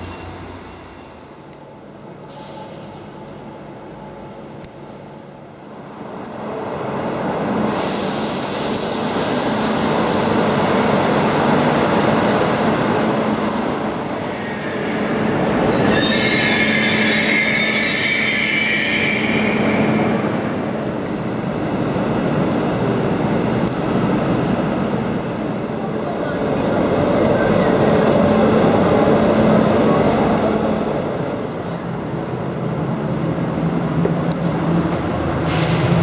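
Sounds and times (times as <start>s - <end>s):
high-speed train running noise: 0.0s - 36.0s
high wavering squeal: 14.2s - 20.6s.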